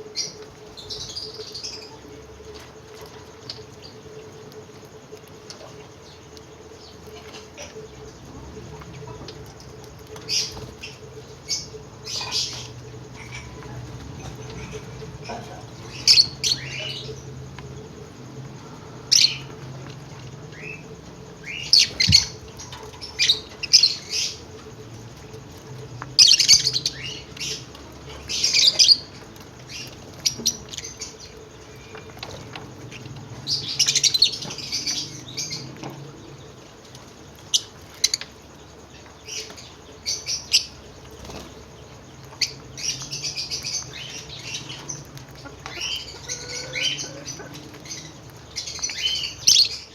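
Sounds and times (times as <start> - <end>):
low steady hum: 0.0 - 49.9
lovebirds chirping and screeching: 0.2 - 2.0, 9.1 - 17.4, 20.5 - 36.6, 37.3 - 49.9.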